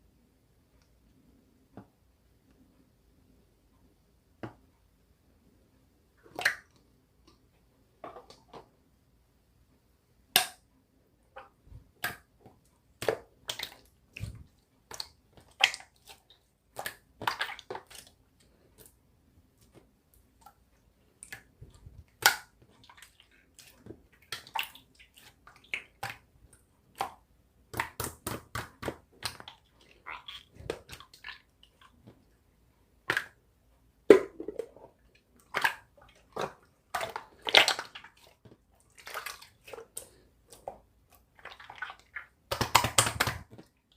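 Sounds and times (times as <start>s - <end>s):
slime squishing: 19.6s - 32.3s, 34.1s - 43.8s.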